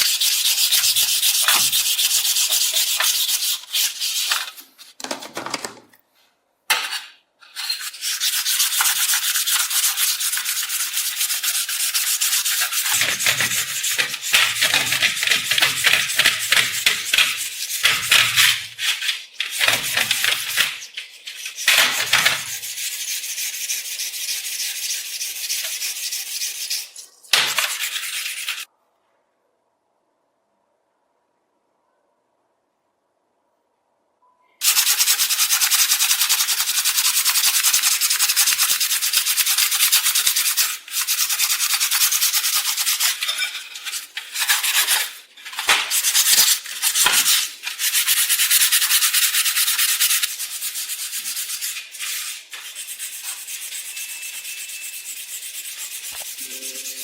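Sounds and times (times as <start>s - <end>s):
abrasive scraping on rusty steel: 50.6s - 57.0s.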